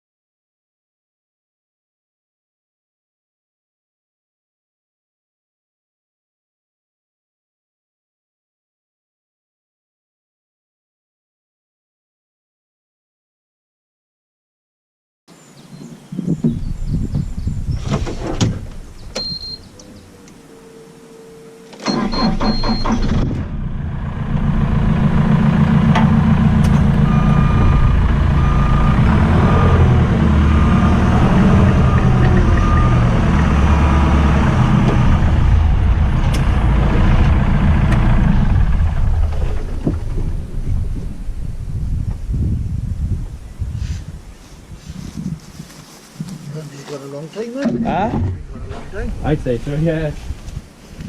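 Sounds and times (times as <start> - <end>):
engine starting and running: 17.7 - 42.2.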